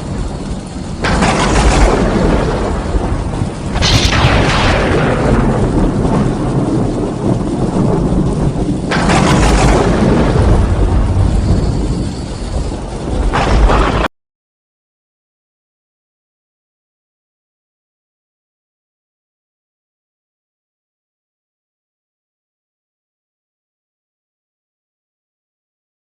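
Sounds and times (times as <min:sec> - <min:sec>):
steady rain: 0:00.0 - 0:14.1
thunder claps rumbling: 0:00.0 - 0:14.1.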